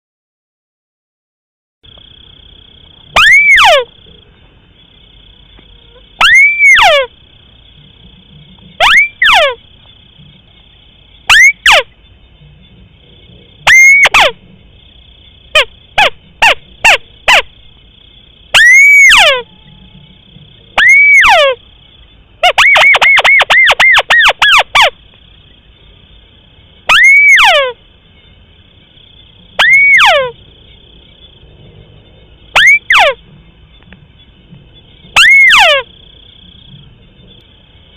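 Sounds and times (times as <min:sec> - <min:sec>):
crake calls: 0:01.9 - 0:04.2, 0:05.2 - 0:10.6, 0:11.2 - 0:14.4, 0:15.0 - 0:25.6, 0:26.8 - 0:27.9, 0:29.1 - 0:31.4, 0:32.4 - 0:34.0, 0:35.0 - 0:37.6
faint high whine: 0:02.0 - 0:37.9.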